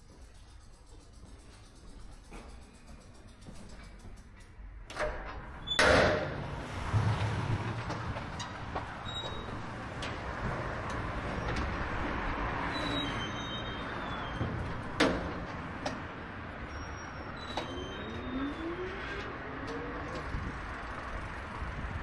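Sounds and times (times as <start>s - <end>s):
street traffic: 0.0s - 22.0s
wind and road noise: 3.4s - 22.0s
rising whines: 17.5s - 20.7s.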